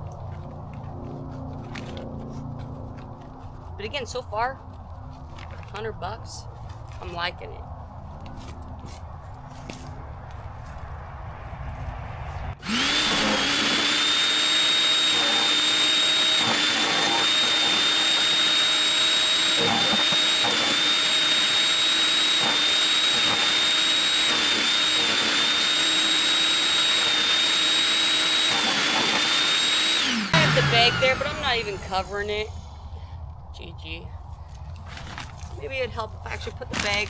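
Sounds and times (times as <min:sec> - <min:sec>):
wood chipper motor whine: 0:12.6 - 0:32.6.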